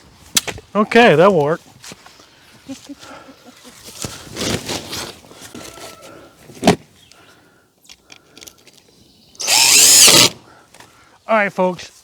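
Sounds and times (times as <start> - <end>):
handling scraping and rustling: 3.6 - 6.8.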